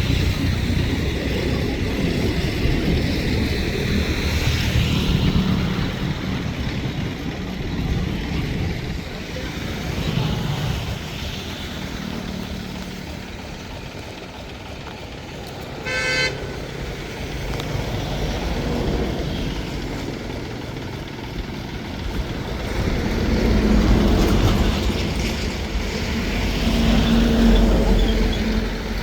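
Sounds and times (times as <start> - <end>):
engine running: 0.0 - 29.0
short horn toot: 15.8 - 16.4.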